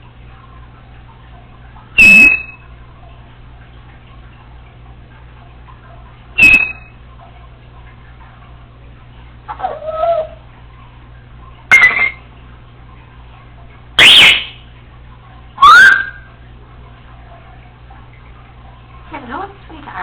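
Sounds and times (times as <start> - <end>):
parrot whistled calls: 2.0 - 2.6, 6.4 - 7.0, 9.5 - 10.4, 11.7 - 12.2, 14.0 - 14.6, 15.6 - 16.3.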